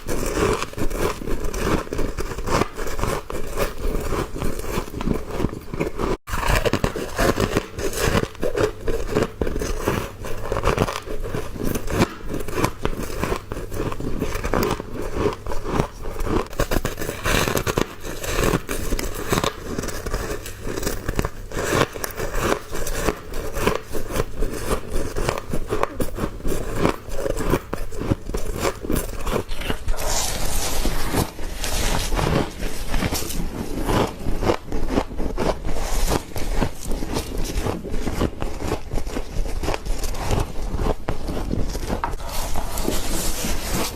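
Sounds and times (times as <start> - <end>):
chewing crunchy frost: 0.0 - 43.9.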